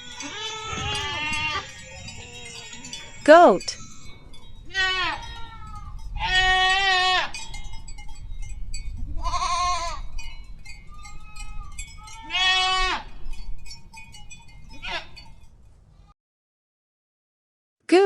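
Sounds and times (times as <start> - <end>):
goats bleating: 0.0 - 4.1, 4.7 - 7.4, 9.2 - 10.0, 11.0 - 13.1, 14.8 - 15.2.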